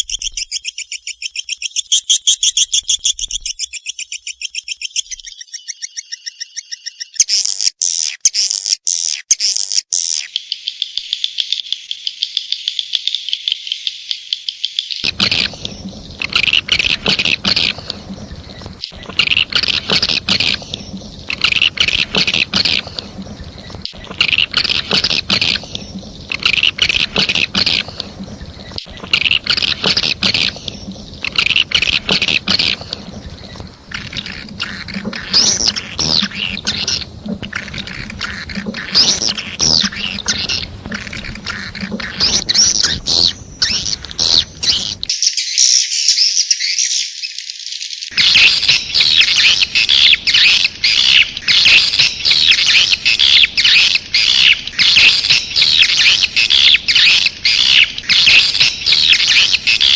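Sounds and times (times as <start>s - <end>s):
swiftlets chirping and twittering: 15.0s - 45.1s, 48.1s - 59.9s
low hum: 15.1s - 45.1s.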